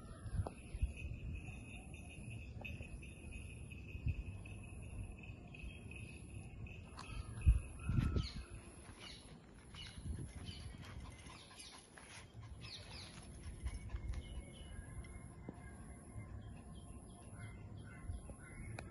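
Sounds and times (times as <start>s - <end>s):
small birds chirping: 5.5s - 18.9s.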